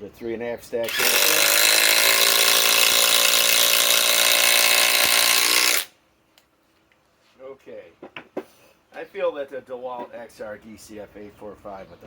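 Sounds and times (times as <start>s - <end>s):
impact driver hammering screw: 0.9s - 5.9s.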